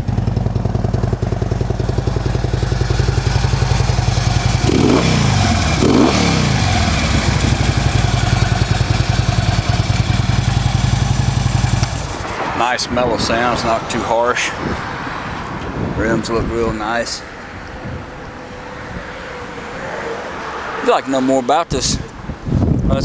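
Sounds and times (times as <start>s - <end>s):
motorcycle engine idling: 0.0s - 12.5s
motorcycle engine revving: 0.0s - 16.3s.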